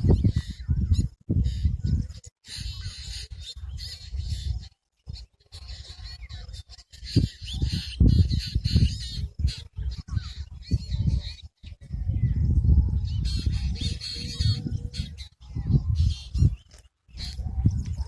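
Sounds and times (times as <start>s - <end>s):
birds calling and chirping: 0.0s - 18.0s
gusty low rumble: 11.8s - 16.6s, 17.2s - 18.0s.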